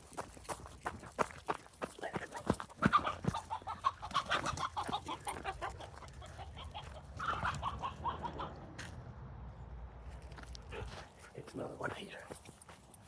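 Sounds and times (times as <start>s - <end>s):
quick running steps: 0.0s - 7.0s
chickens clucking: 2.0s - 9.0s.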